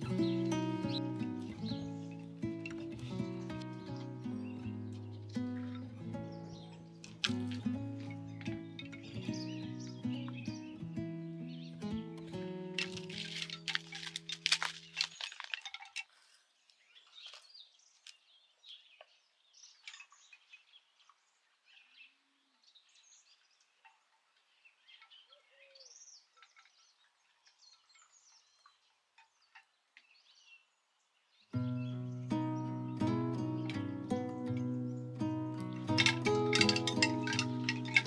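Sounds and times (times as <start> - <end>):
faint birdsong: 0.0 - 38.0
light clinks: 35.5 - 38.0.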